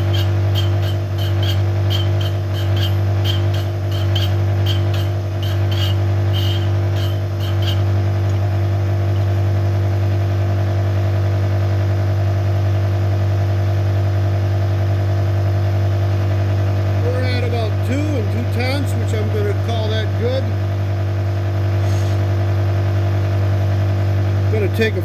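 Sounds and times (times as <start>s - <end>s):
grinding wheel ticking on metal: 0.0s - 9.4s
grinder motor hum: 0.0s - 25.0s.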